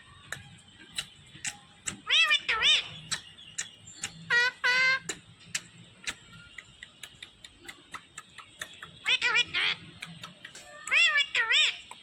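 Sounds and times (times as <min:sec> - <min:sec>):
sharp clicks and ticks: 0:00.2 - 0:02.1, 0:03.0 - 0:04.3, 0:05.0 - 0:09.2, 0:09.8 - 0:11.1
parrot wavering calls: 0:02.0 - 0:03.0, 0:04.3 - 0:05.1, 0:09.0 - 0:09.8, 0:10.9 - 0:11.8.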